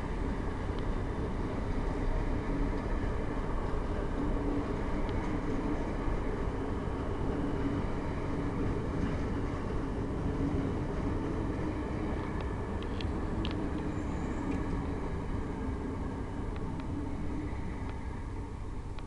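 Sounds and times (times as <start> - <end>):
train droning: 0.0 - 19.0
faint clicks: 12.2 - 13.9, 17.8 - 18.0.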